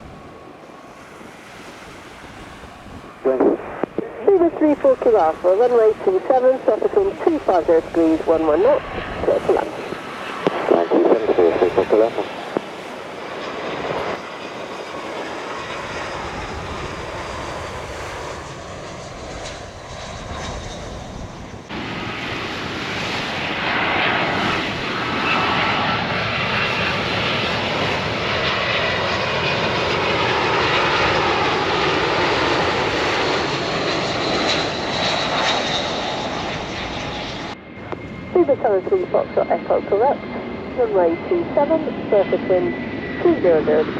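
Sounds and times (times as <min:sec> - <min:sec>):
jet engines rumble and whine: 0:00.0 - 0:43.9.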